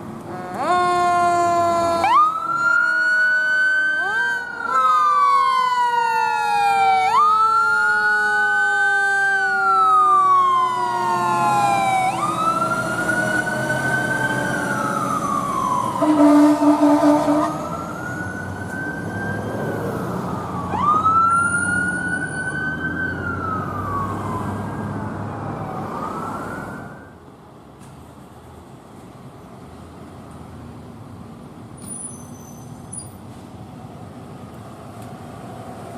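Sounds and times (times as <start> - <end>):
electronic siren wailing: 0.5 - 25.2
lower siren tone sliding down: 0.6 - 27.2
air horn blast: 16.0 - 17.6.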